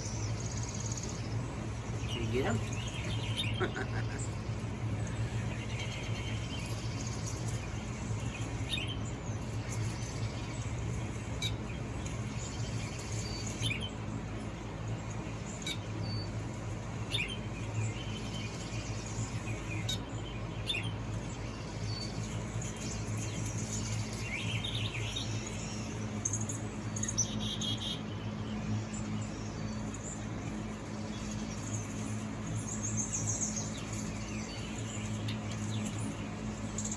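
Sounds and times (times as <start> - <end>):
low hum: 0.0 - 11.2.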